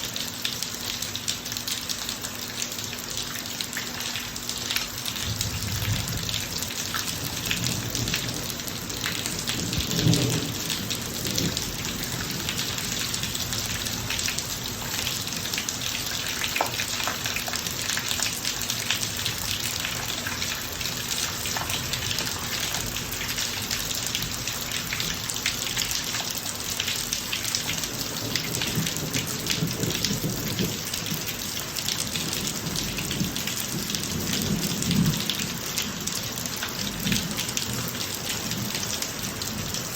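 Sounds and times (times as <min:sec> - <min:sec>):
heavy rain on pavement: 0:00.0 - 0:39.9
thunder rumbling: 0:05.3 - 0:13.9.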